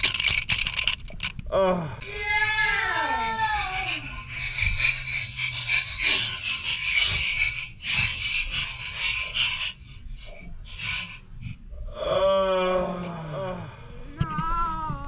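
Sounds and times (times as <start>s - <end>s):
toy truck rattling and scraping: 0.0s - 1.5s, 2.2s - 11.6s.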